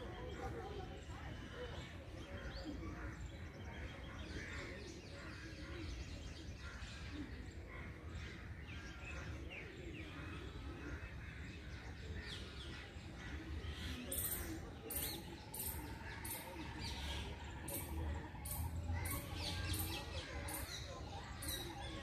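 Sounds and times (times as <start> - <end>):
small birds chirping: 12.1 - 22.0.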